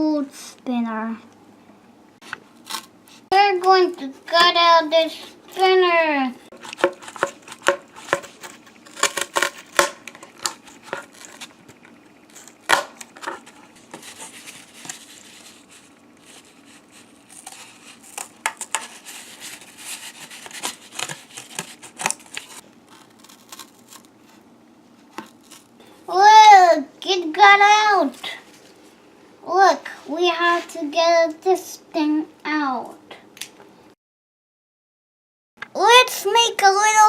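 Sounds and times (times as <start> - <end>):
cardboard rustling: 6.5 - 11.6, 12.3 - 24.4.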